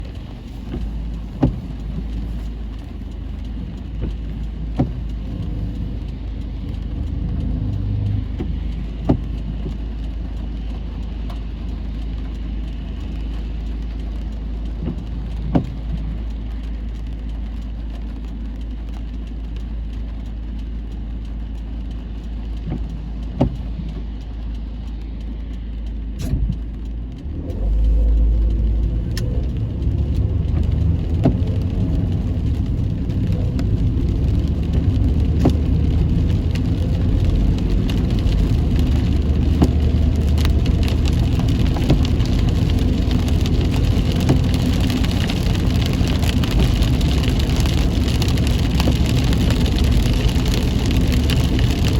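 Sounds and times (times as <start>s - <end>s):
road and wind rumble in car: 0.0s - 51.9s.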